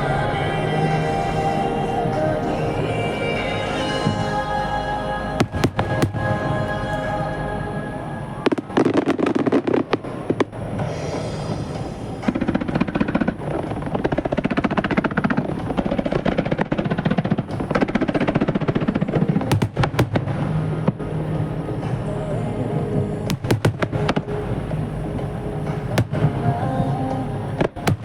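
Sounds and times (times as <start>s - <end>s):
music playing: 0.0s - 9.8s, 18.7s - 28.0s
fireworks bursting and crackling: 8.4s - 21.0s.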